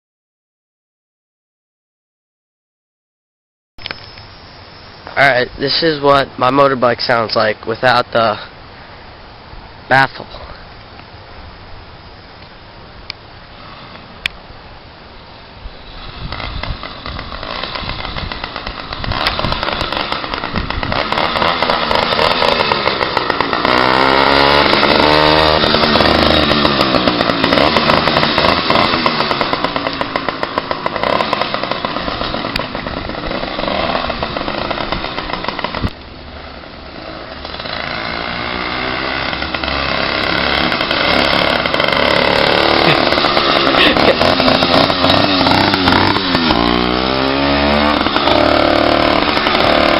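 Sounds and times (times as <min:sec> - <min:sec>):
two-stroke engine revving: 0:15.8 - 0:49.9.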